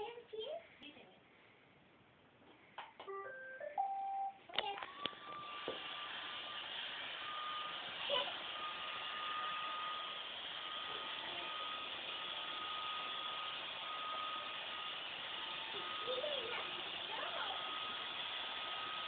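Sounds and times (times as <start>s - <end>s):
thin steady whine: 3.8s - 19.0s
robot vacuum whirring: 4.8s - 19.0s.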